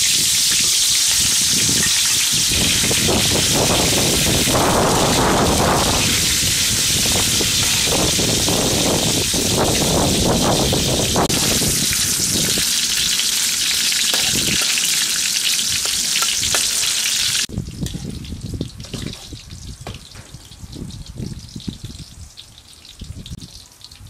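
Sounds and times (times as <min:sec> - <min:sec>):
meatballs sizzling in oil: 0:00.0 - 0:17.5.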